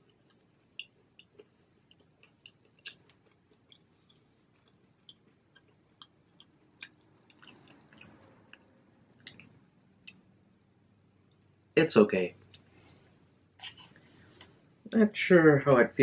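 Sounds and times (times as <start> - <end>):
person chewing crispy pizza: 0.0 - 10.2, 13.6 - 14.5.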